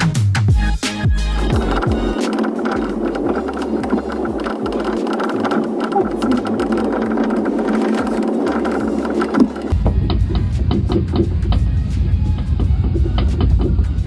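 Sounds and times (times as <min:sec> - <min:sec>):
background music with deep bass: 0:00.0 - 0:14.0
car cabin rattling noise: 0:01.5 - 0:09.8.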